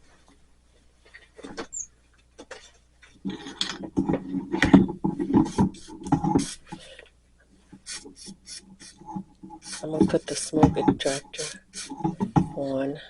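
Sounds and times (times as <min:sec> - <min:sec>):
knocks and clatter: 0:03.2 - 0:06.5.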